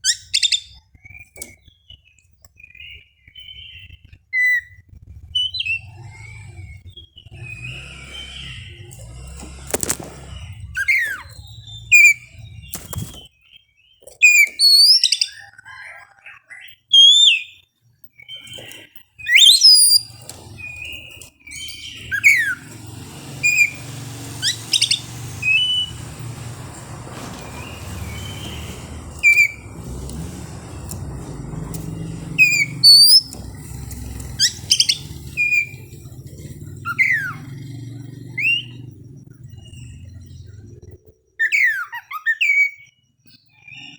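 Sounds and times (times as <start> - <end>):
songbird whistling song: 10.8 - 15.9, 18.2 - 22.7, 24.4 - 30.4, 31.9 - 36.1.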